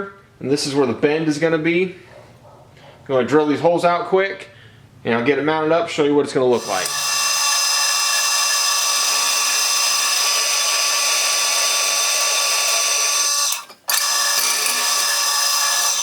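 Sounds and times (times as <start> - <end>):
electric drill drilling steel: 6.6 - 16.0.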